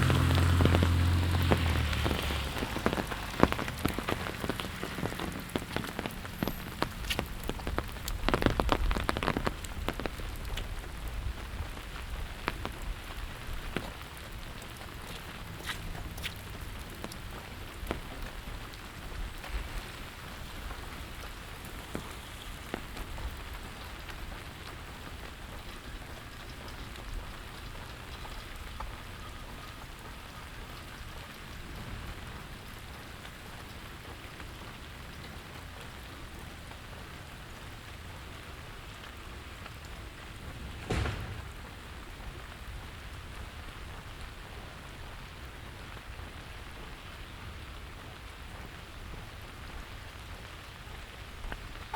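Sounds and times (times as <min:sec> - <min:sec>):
steady rain: 0:00.0 - 0:51.9
loud thump: 0:40.6 - 0:42.2.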